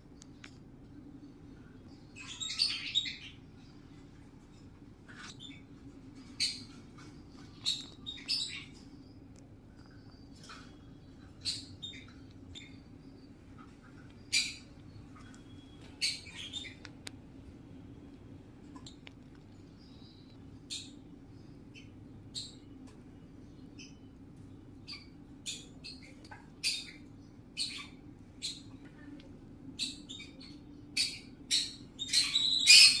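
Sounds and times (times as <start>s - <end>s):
steady low hum: 0.0s - 33.0s
parrot squawking and chirping: 2.2s - 3.4s, 15.5s - 16.8s, 24.9s - 27.0s, 27.6s - 28.7s, 29.8s - 33.0s.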